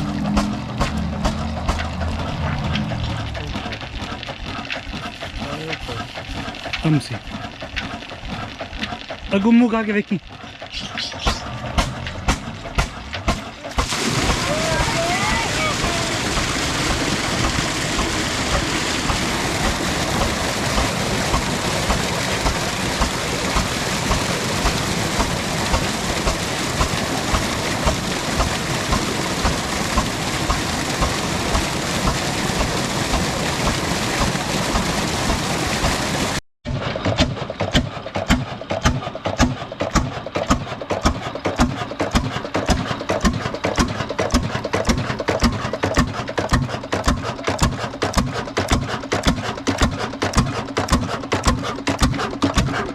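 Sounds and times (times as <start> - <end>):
dense steady rushing noise: 0.0 - 6.1
diesel engine knocking: 0.0 - 52.9.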